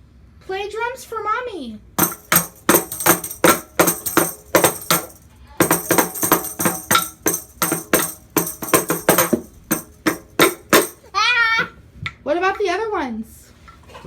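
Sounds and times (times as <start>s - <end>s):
child beating toy drum: 2.0s - 11.1s
metallic jingle: 2.0s - 11.1s.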